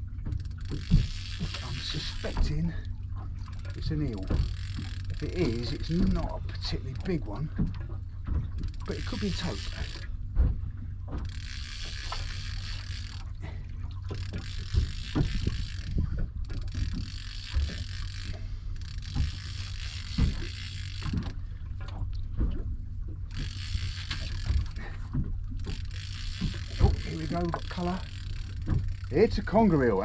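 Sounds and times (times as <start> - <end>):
fishing reel winding: 0.3 - 7.6, 8.5 - 10.1, 11.1 - 21.5, 23.3 - 30.0
low thumps and knocks: 19.1 - 23.5.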